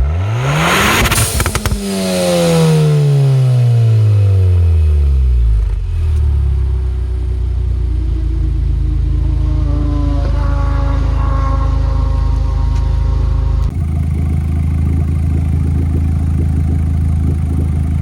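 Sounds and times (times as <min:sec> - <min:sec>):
exhaust crackles and pops: 0:00.0 - 0:03.2, 0:10.2 - 0:18.0
car engine revving and idling: 0:00.0 - 0:18.0.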